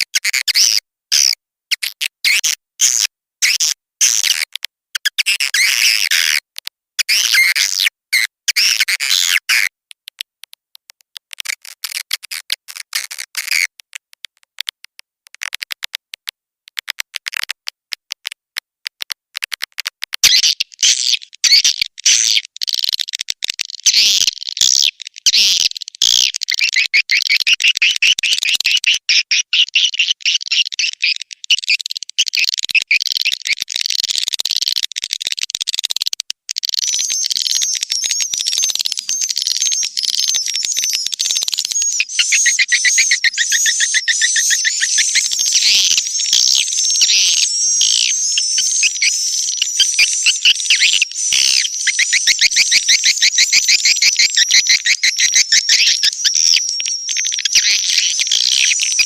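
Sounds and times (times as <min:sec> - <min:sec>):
swiftlets chirping and twittering: 0:36.6 - 0:59.0.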